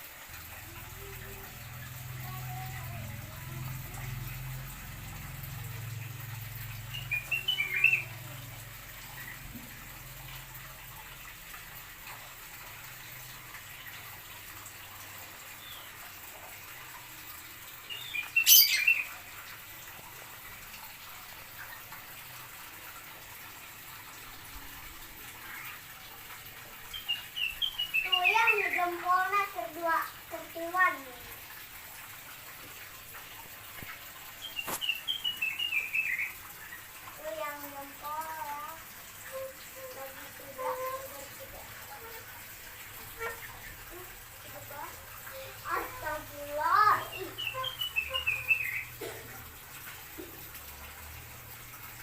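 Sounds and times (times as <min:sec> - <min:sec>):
small birds chirping: 0:06.7 - 0:09.5, 0:15.6 - 0:16.0, 0:17.8 - 0:19.2, 0:26.9 - 0:29.1, 0:34.4 - 0:37.6, 0:44.8 - 0:49.0.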